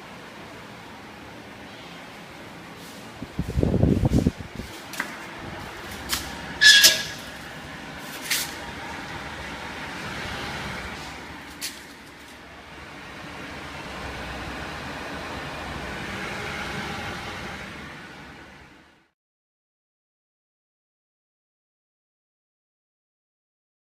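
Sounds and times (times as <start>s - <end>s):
electric fans whirring: 0.0s - 19.1s.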